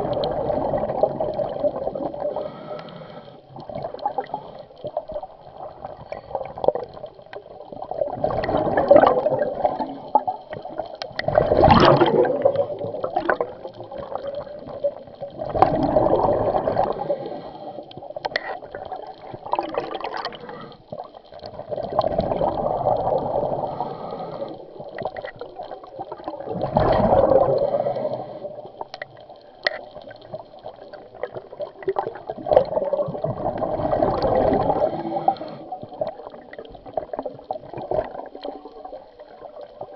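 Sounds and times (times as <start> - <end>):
bubbles gurgling underwater: 0.0 - 2.6, 3.5 - 39.9
diver breathing through regulator: 2.2 - 3.6, 16.8 - 17.9, 20.1 - 21.0, 23.3 - 24.8, 27.2 - 28.7, 34.5 - 35.9.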